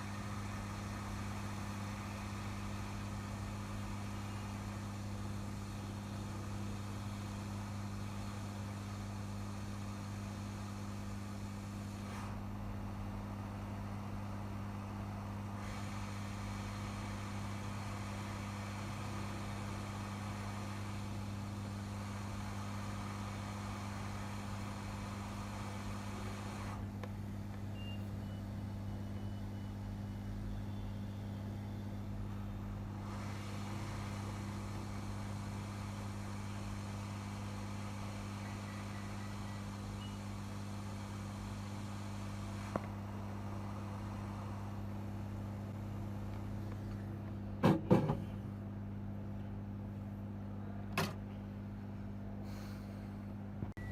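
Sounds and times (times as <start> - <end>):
hot air hiss: 0.0 - 27.0, 32.6 - 46.3, 52.4 - 53.2
steady mains hum: 0.0 - 53.9.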